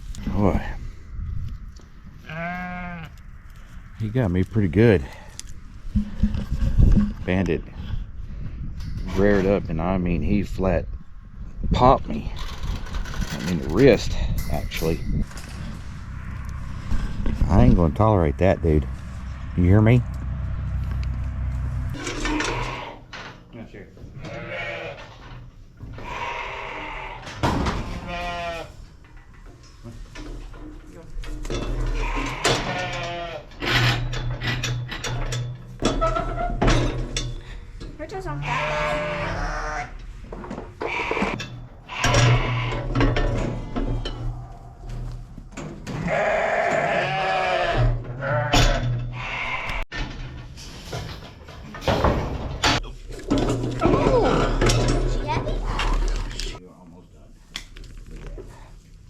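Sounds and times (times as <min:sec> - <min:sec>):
sheep bleating: 0:02.2 - 0:03.2, 0:24.2 - 0:25.1, 0:26.0 - 0:27.2, 0:28.0 - 0:28.7, 0:38.3 - 0:39.9, 0:46.0 - 0:49.8
steady low hum: 0:13.5 - 0:24.2.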